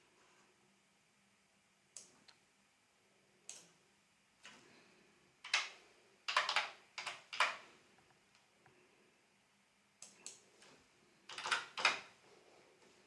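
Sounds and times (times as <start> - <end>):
keyboard keystrokes: 11.3 - 12.1.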